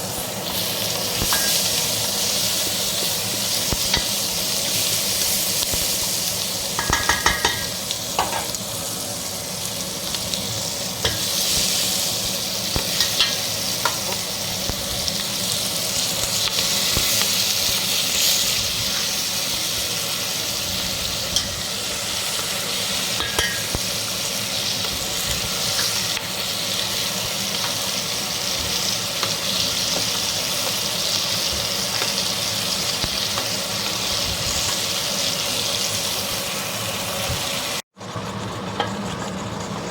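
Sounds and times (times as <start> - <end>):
food sizzling in a pan: 0.0 - 38.0
metal utensil clinking on pan: 6.8 - 8.6, 13.0 - 14.0, 23.2 - 23.8.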